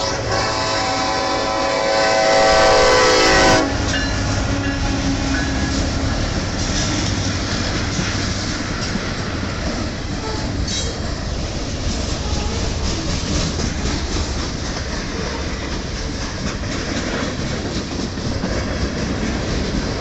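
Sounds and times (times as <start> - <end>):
locomotive horn: 0.0 - 6.1
train wheels rumbling on rails: 0.0 - 20.0.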